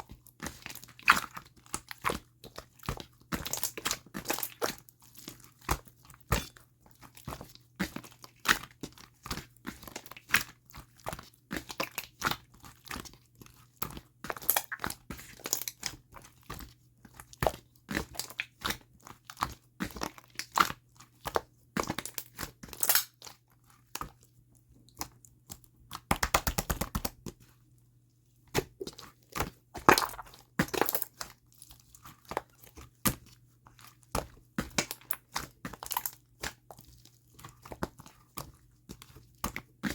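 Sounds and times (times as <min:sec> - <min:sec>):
slime squished by hand: 0:28.5 - 0:38.4.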